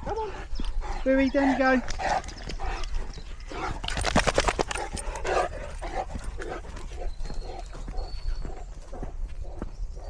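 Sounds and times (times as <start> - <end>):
dog huffing breaths: 0.0 - 10.0
rustling and clicks: 3.7 - 5.3.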